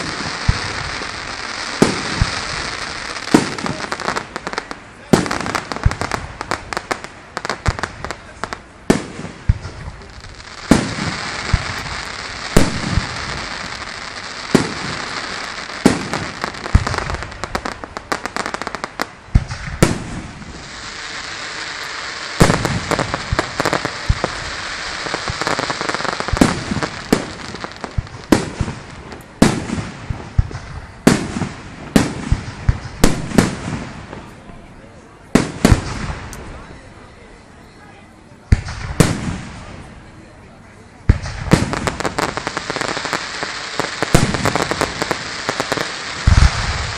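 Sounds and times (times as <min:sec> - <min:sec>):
fireworks shells bursting: 0:00.0 - 0:02.4
fireworks crackling hiss: 0:00.0 - 0:46.9.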